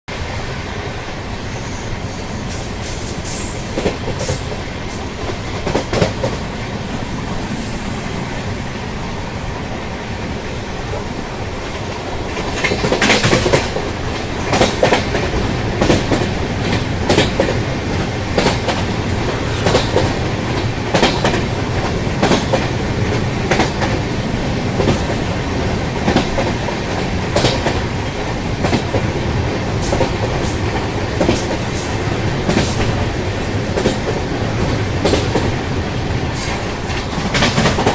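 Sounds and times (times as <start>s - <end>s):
train rail rumble: 0.1s - 37.9s
wheels clickety-clack over rail joints: 2.5s - 7.0s, 10.4s - 37.9s.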